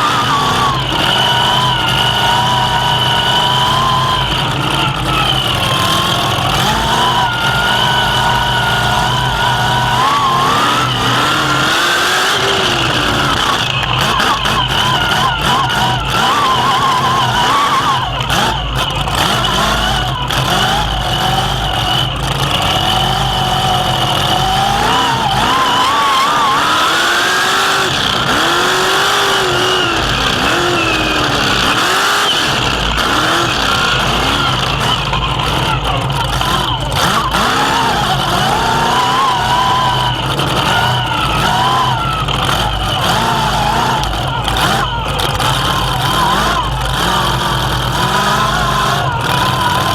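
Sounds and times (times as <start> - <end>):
truck engine revving: 0.0 - 49.9.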